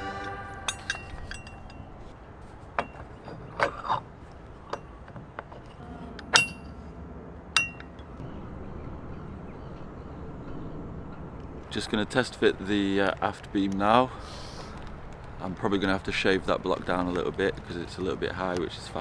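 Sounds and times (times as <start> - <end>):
tools clinking and knocking: 0.0 - 6.8, 7.6 - 8.1
low background noise: 0.0 - 19.0.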